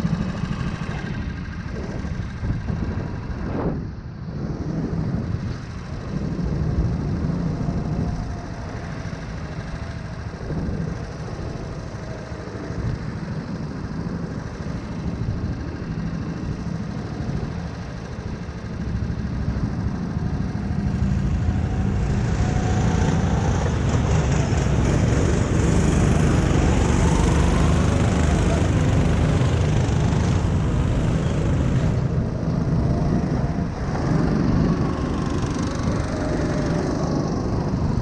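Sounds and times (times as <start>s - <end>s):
small engine running: 0.0s - 38.0s.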